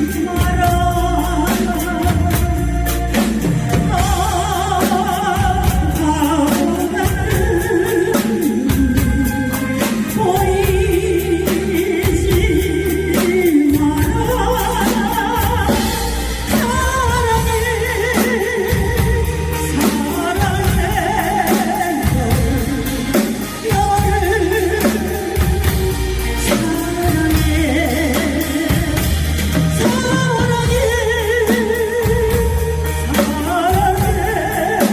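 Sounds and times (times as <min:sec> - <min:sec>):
person singing with vibrato: 0:00.0 - 0:34.9.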